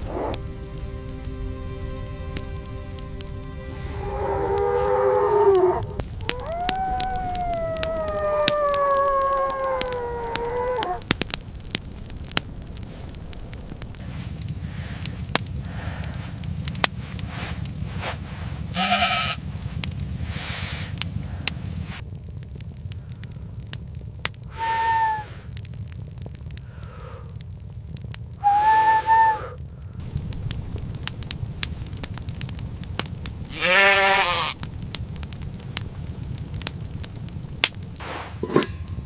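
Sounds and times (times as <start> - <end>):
long drawn-out animal calls: 0.0 - 0.4, 3.8 - 11.0, 18.8 - 19.4, 24.5 - 25.5, 28.4 - 29.6, 33.5 - 34.6
low rumble: 0.0 - 33.5
sharp crackling clicks: 5.3 - 17.9, 29.8 - 38.0.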